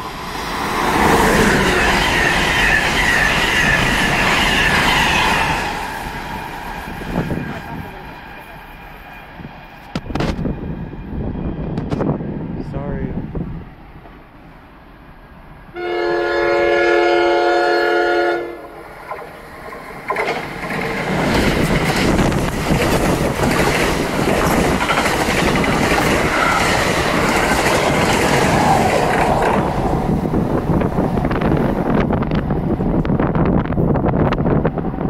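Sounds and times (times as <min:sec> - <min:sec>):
train passing with rumble: 0:00.0 - 0:35.0
train air horn blast: 0:15.7 - 0:18.6
wheels clattering over rails: 0:19.0 - 0:30.1.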